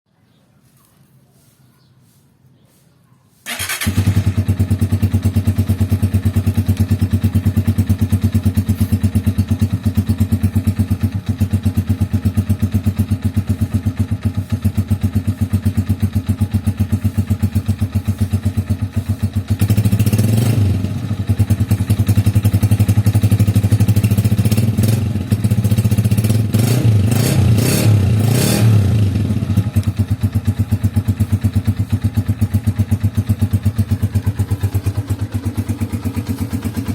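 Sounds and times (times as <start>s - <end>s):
motorcycle engine idling: 3.4s - 27.2s, 28.8s - 36.9s
engine revving: 3.5s - 4.8s, 19.0s - 29.9s.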